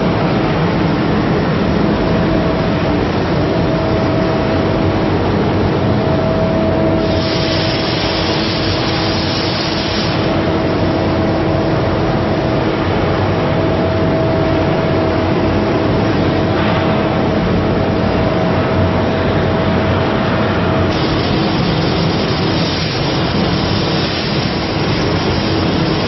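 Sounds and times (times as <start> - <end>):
machine hum: 0.0 - 26.0
cutting torch hissing roar: 6.9 - 10.8, 20.9 - 26.0.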